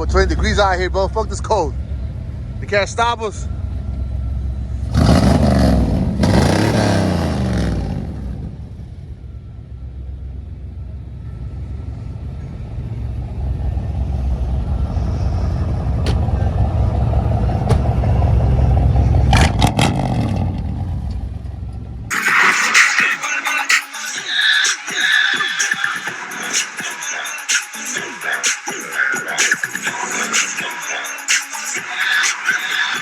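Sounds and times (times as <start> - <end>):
truck engine revving: 4.6 - 9.3, 13.3 - 23.8.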